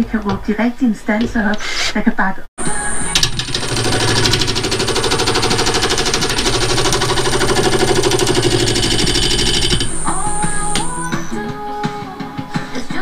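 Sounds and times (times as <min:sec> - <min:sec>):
power tool hammering rattle: 0:02.6 - 0:11.3.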